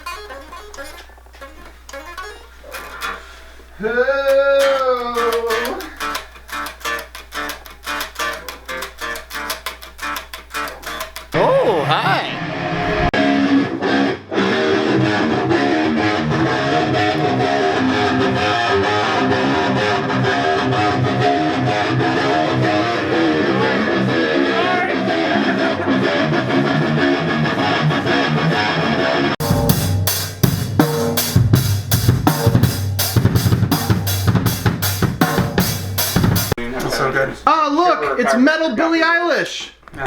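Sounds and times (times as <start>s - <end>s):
rock guitars playing: 0.0s - 36.6s
rapid drum hits: 29.4s - 36.6s.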